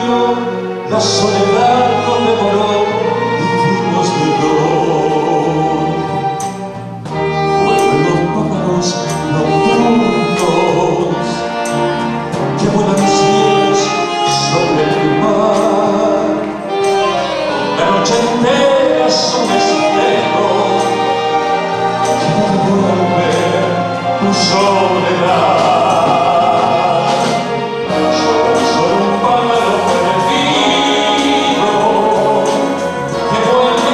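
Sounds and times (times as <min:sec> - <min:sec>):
band playing slow song: 0:00.0 - 0:33.9
man singing: 0:00.0 - 0:33.9.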